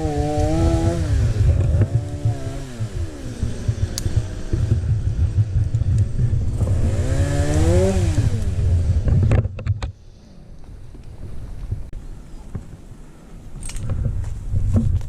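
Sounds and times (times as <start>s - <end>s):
chainsaw running: 0.0s - 9.4s.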